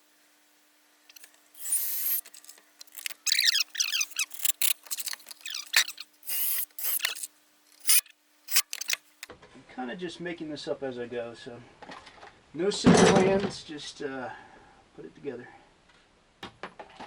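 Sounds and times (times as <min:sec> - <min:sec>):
squeaky rubbing: 0:02.9 - 0:09.0.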